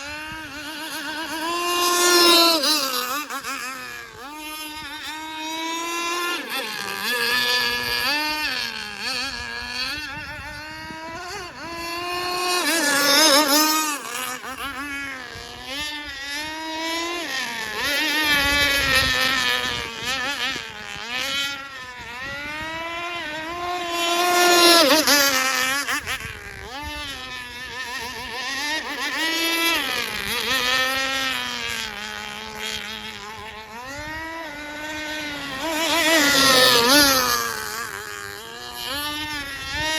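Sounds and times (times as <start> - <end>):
model boat engine buzzing: 0.0 - 39.9.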